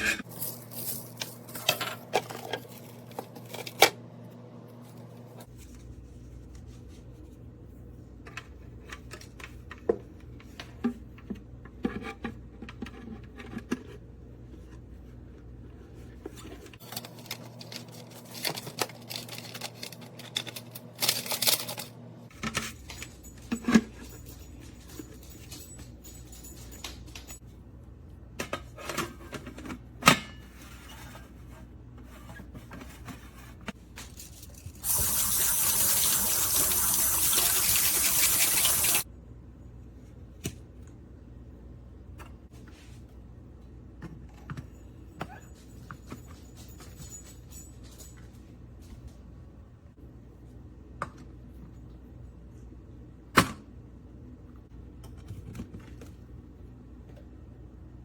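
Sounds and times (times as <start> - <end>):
water running: 34.7 - 39.0.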